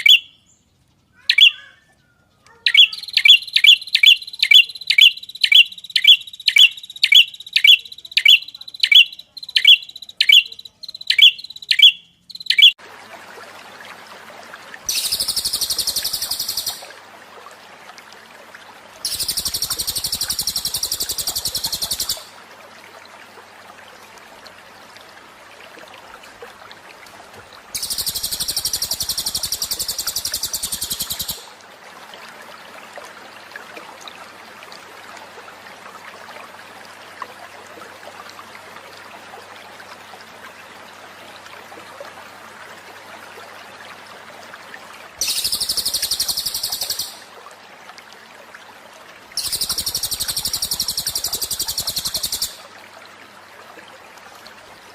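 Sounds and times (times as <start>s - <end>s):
songbird high chirps: 0.0s - 12.8s, 14.9s - 16.9s, 19.1s - 22.3s, 27.8s - 31.5s, 45.2s - 47.2s, 49.4s - 52.6s
songbird fast high trills: 1.2s - 1.8s, 2.7s - 12.7s, 14.9s - 16.9s, 45.2s - 47.2s.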